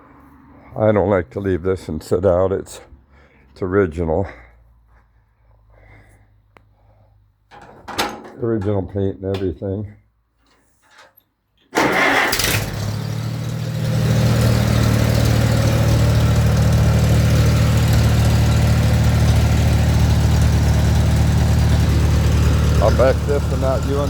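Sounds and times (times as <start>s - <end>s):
tractor engine starting and idling: 11.7s - 24.0s.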